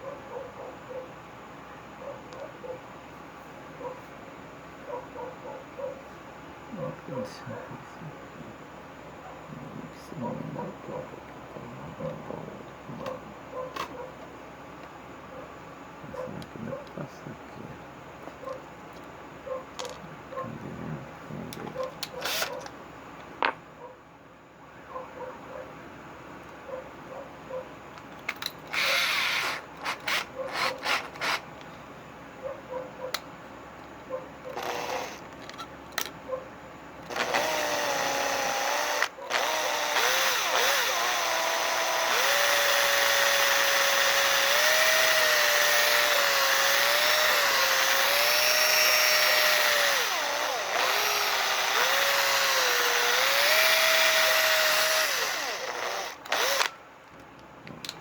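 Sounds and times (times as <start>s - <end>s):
drill clicks: 21.6s - 22.7s, 28.2s - 31.5s, 34.5s - 35.6s, 37.0s - 56.8s
electric drill running: 22.2s - 22.5s, 28.7s - 31.4s, 34.6s - 35.2s, 37.1s - 56.8s.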